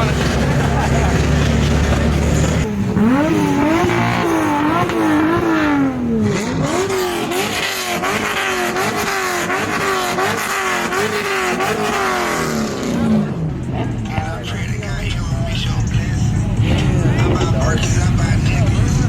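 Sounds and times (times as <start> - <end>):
car engine revving in blips: 0.0 - 19.0.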